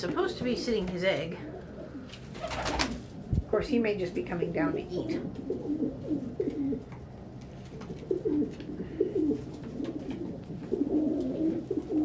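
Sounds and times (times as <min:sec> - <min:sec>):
pigeons cooing: 0:01.4 - 0:03.2, 0:04.9 - 0:12.0.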